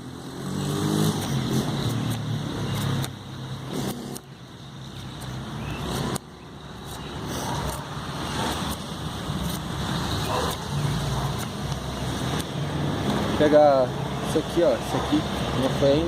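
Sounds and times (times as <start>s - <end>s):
knife shaving dry wood: 1.2s - 3.2s, 8.5s - 9.7s.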